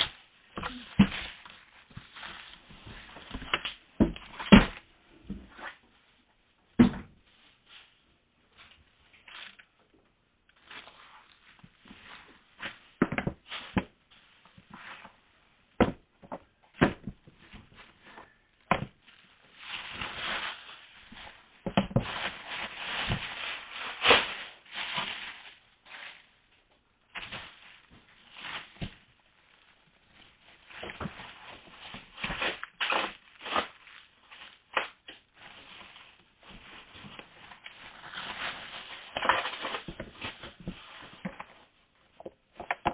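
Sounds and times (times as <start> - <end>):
packaging rustling: 27.1 - 41.8.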